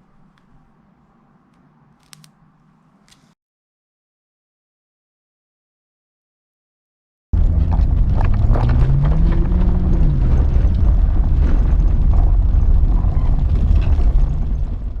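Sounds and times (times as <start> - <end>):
car engine revving: 7.4 - 11.6.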